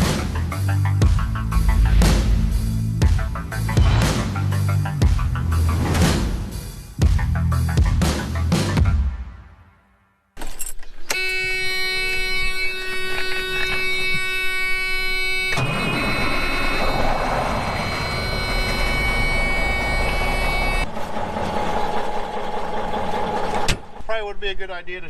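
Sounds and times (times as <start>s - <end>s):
horn-like tone: 11.0s - 20.9s.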